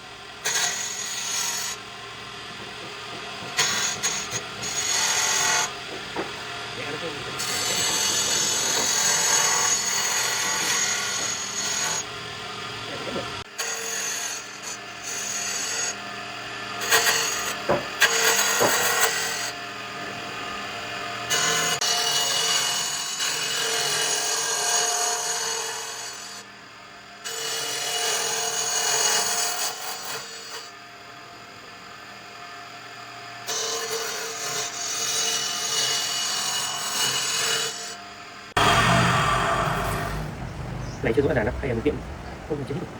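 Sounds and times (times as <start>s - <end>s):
tools rasping against wood: 3.0s - 6.5s, 7.2s - 12.0s, 16.8s - 19.4s
sharp knocks: 17.6s - 18.9s
steady motor tone: 38.1s - 42.9s.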